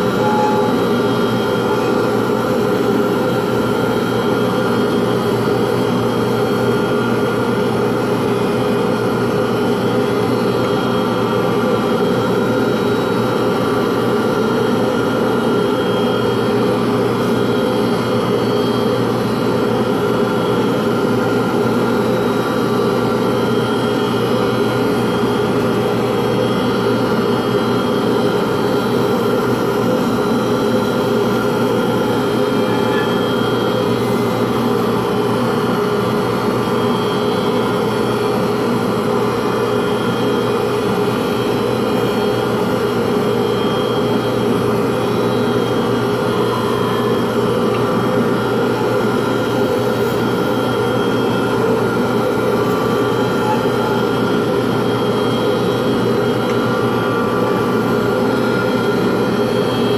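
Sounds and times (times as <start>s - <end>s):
electric motor humming: 0.0s - 7.0s.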